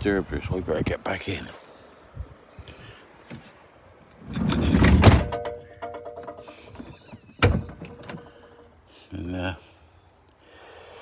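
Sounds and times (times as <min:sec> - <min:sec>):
van door rumbling open: 0:04.2 - 0:08.4
door shutting with a thunk: 0:06.9 - 0:08.2.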